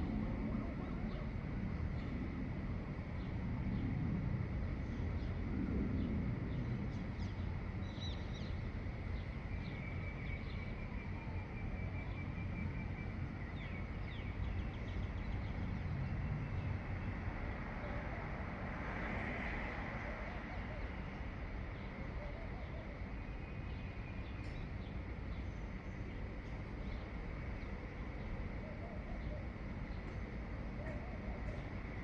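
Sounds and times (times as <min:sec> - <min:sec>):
steady low background rumble: 0:00.0 - 0:18.6
songbirds chirping and trilling: 0:19.2 - 0:32.0.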